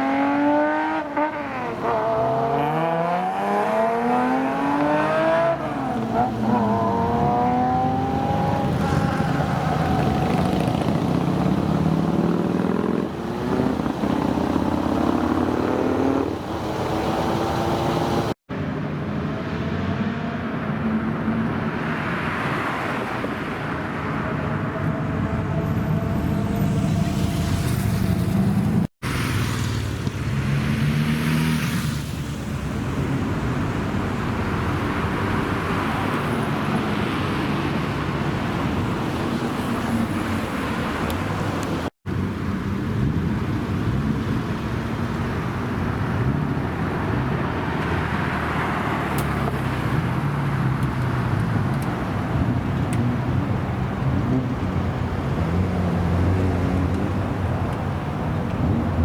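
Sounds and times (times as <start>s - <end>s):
car engines revving: 0.0s - 59.0s
steady traffic noise: 0.0s - 59.0s.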